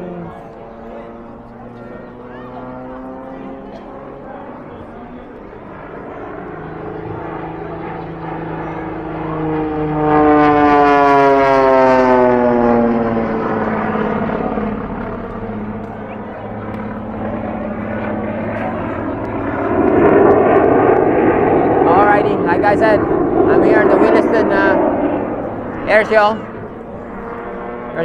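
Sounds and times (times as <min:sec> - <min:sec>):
small propeller airplane flying past: 0:00.0 - 0:28.0.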